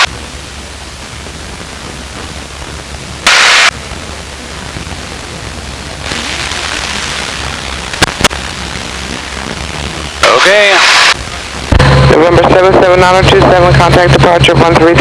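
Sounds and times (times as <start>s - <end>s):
light plane engine drone: 0.0s - 15.0s
radio static burst: 0.0s - 15.0s
intercom hiss: 3.2s - 14.9s.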